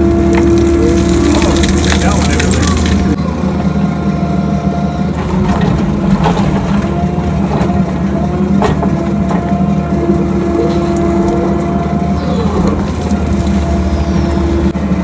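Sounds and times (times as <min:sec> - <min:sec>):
diesel engine running under load: 0:00.0 - 0:15.0
hydraulic whine: 0:00.0 - 0:15.0
person talking: 0:00.8 - 0:03.2.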